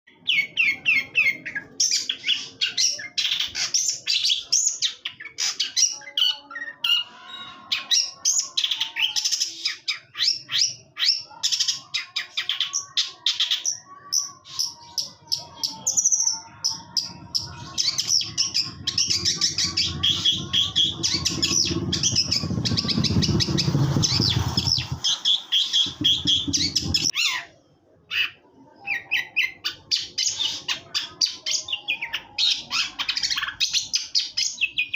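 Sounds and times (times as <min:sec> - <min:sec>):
bird chattering song: 0:00.1 - 0:34.9
low background rumble: 0:18.5 - 0:25.1.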